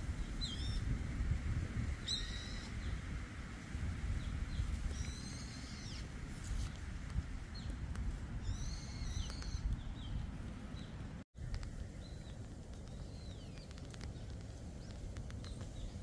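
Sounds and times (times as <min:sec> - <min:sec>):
wild birds calling: 0:02.0 - 0:03.1, 0:04.2 - 0:06.2, 0:08.4 - 0:11.1.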